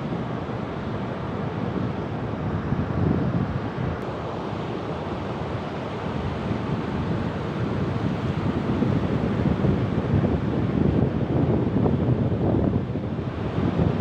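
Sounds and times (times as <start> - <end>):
wind on microphone: 6.2 - 14.0.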